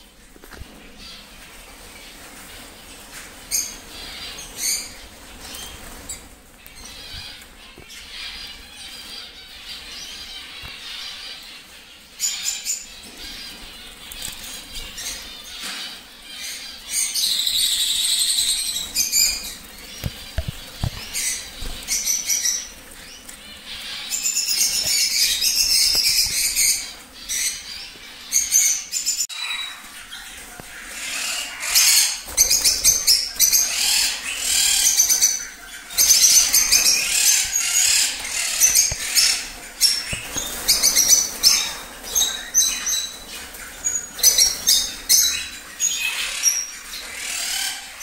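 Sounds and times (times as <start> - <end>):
cage birds chirping and calling: 0.0 - 48.0
loud bird chattering: 12.2 - 48.0.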